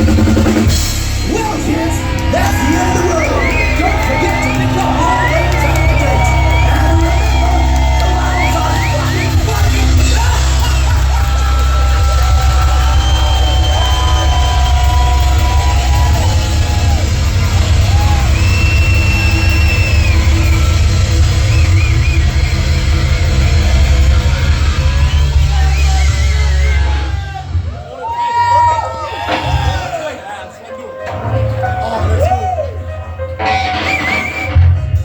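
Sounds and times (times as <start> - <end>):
heavy metal band playing live: 0.0 - 29.9, 33.4 - 35.0.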